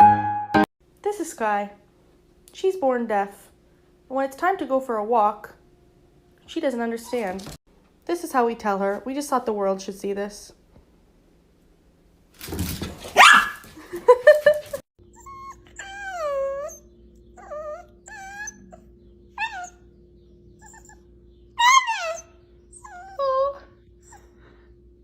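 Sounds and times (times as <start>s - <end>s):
dog whining and yipping: 13.2s - 13.6s, 15.0s - 19.9s, 20.6s - 24.3s.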